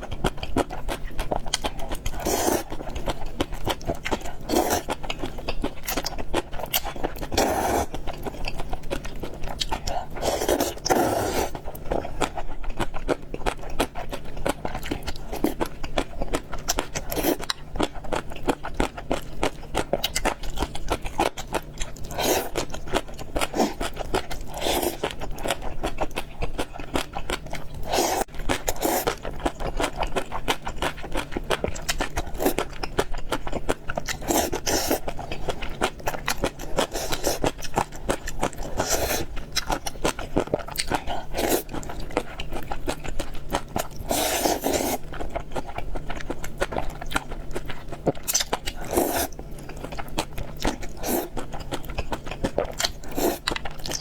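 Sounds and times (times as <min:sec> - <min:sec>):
close chewing of food: 0:00.0 - 0:54.0.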